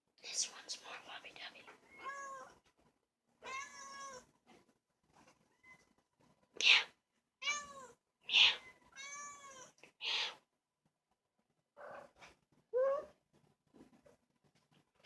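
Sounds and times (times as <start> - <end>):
kittens meowing: 7.4 - 10.4.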